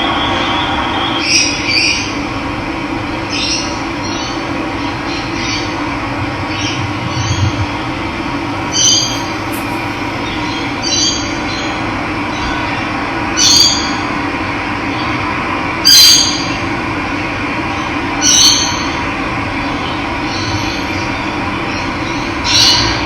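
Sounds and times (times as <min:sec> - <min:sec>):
bird short call: 0:08.6 - 0:11.0.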